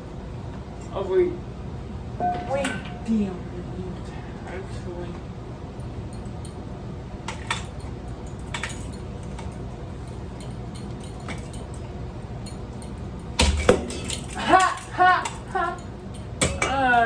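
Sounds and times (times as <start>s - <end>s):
metal parts clinking: 7.3s - 16.3s.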